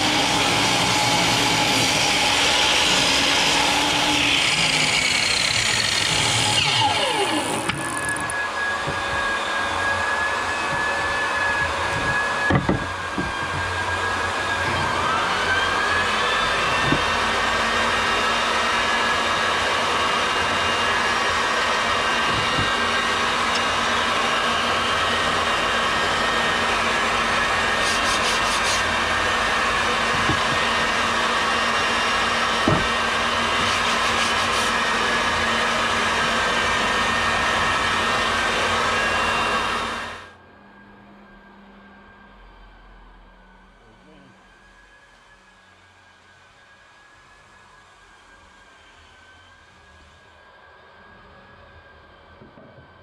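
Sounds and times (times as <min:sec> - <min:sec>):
power tool motor whining: 0:00.0 - 0:40.4.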